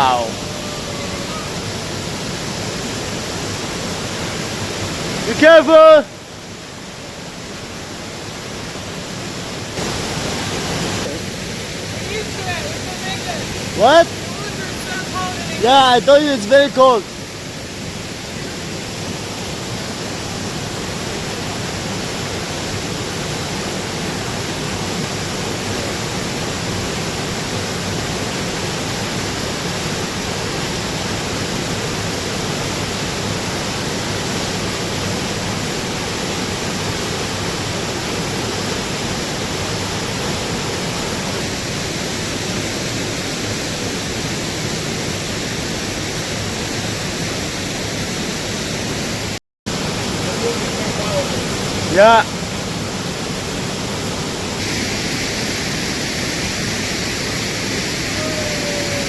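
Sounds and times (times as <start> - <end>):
waterfall crashing into pool: 0.0 - 59.0.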